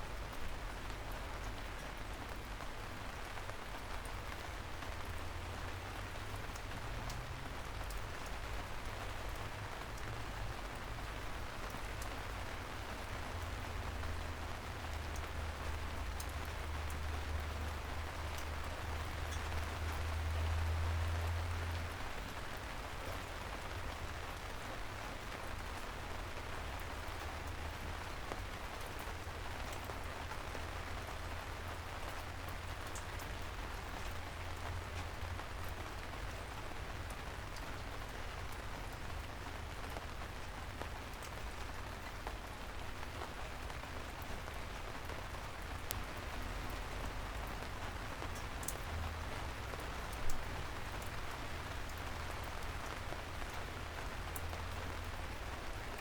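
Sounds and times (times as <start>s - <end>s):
soft rain hissing: 0.0s - 56.0s
drips ticking: 48.2s - 49.2s.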